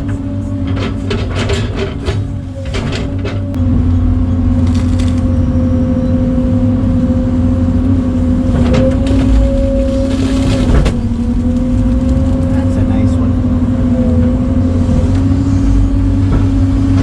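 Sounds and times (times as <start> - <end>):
rattles and clanks: 0.0 - 3.6, 8.4 - 14.2, 14.9 - 17.0
machine engine running: 0.0 - 17.0.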